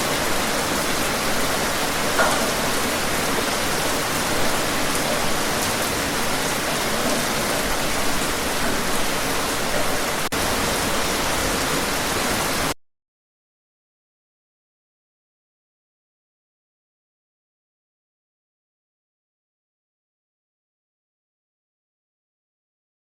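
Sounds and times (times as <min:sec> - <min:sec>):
heavy rain: 0:00.0 - 0:12.8.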